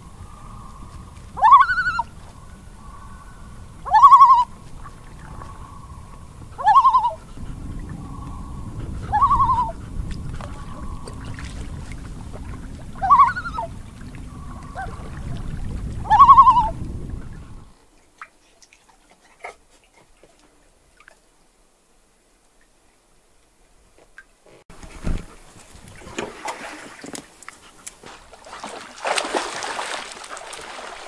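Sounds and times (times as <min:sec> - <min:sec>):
bird quavering call: 0:00.0 - 0:07.2, 0:08.0 - 0:09.8, 0:13.0 - 0:13.7, 0:16.0 - 0:16.8.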